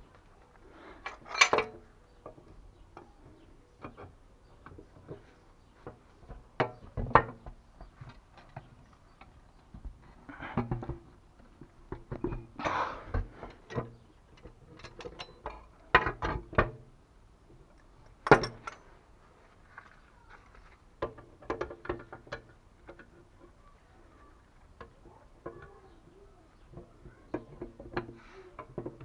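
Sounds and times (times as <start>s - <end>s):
tools and metal parts clicking: 1.0s - 2.4s, 13.5s - 16.3s, 17.8s - 19.0s.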